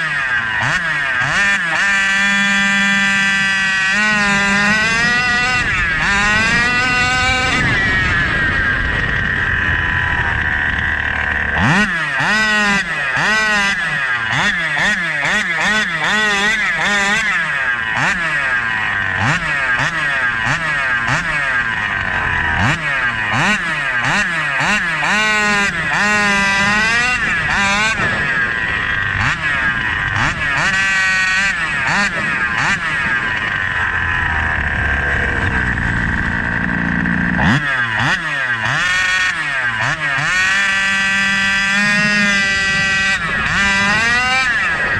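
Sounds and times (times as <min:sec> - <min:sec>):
two-stroke engine revving: 0:00.0 - 0:44.9.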